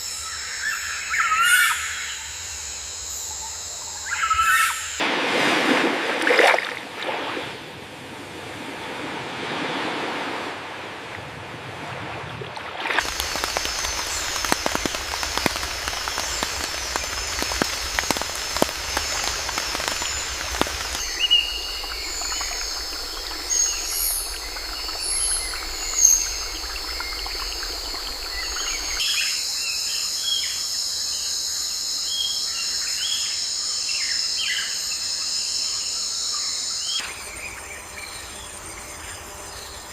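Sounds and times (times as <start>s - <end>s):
high insect chorus: 0.0s - 5.0s, 13.0s - 39.9s
birds chirping: 13.0s - 29.1s
crackling hiss: 13.0s - 29.2s.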